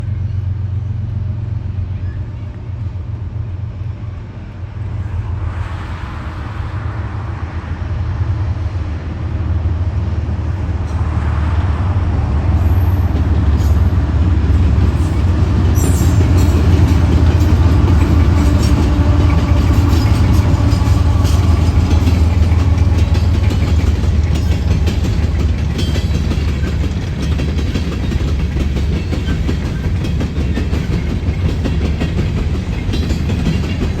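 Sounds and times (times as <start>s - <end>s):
locomotive engine and rail rumble: 0.0s - 34.0s
wheels clicking over rail joints: 12.6s - 34.0s.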